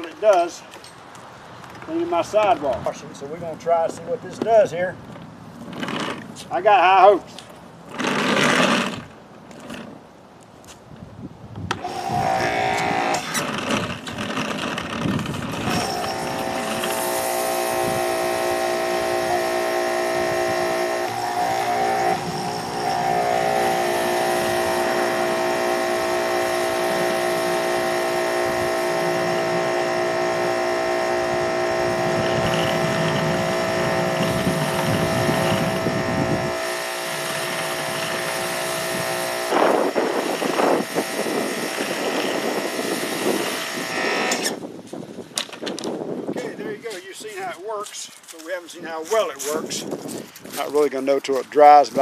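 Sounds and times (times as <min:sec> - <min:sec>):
pressure washer running: 0:11.8 - 0:44.6.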